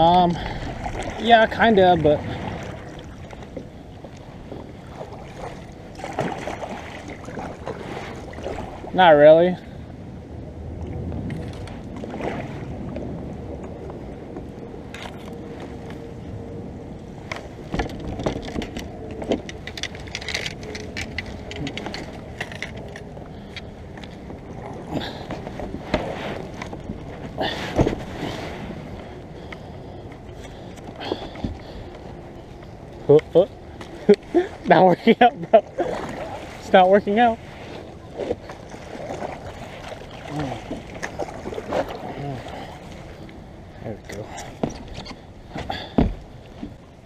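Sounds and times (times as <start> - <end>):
paddle splashing water: 0.0 - 9.0, 10.9 - 13.9, 17.3 - 47.0
kayak knocks: 44.6 - 46.8.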